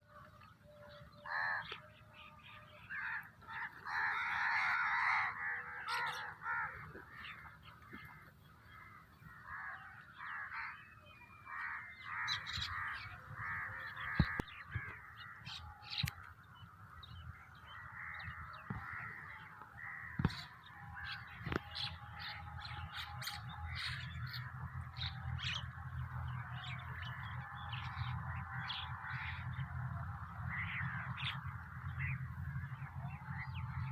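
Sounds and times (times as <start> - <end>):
birds calling: 0.0 - 33.9
crows cawing: 0.1 - 16.2, 17.0 - 25.6.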